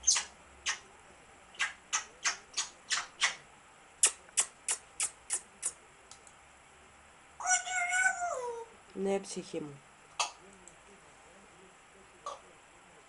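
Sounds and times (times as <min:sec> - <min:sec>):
parrot making raspy hissing clicks: 0:04.0 - 0:05.8.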